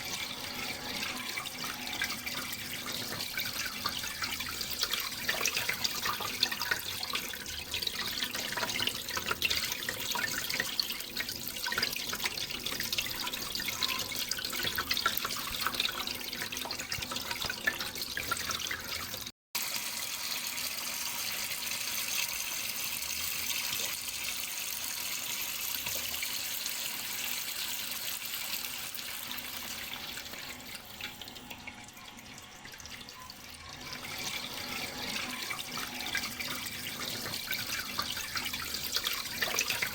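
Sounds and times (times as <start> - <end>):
water splashing and trickling: 0.0 - 19.3, 28.2 - 39.9.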